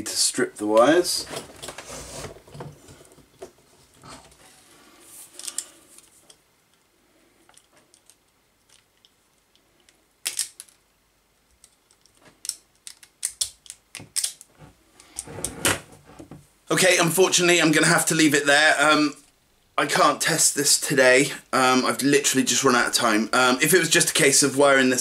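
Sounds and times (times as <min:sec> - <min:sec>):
wire strippers snipping: 0:12.0 - 0:14.5.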